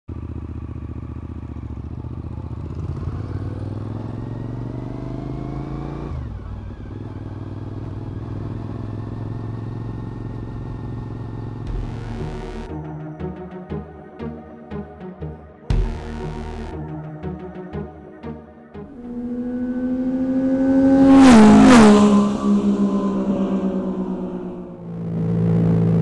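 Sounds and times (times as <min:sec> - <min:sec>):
motorcycle engine revving: 0:00.1 - 0:13.0, 0:18.8 - 0:26.0.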